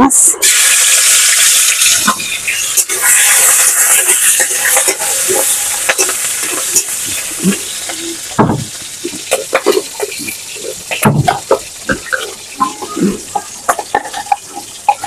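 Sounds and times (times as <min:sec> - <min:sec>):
prawns sizzling in hot oil: 0:00.0 - 0:15.0
loud knock: 0:08.4 - 0:08.7.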